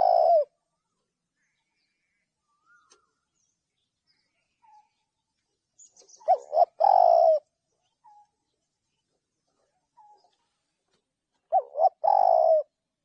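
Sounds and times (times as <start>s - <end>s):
dove cooing: 0.0s - 0.6s, 6.2s - 8.2s, 11.4s - 12.8s.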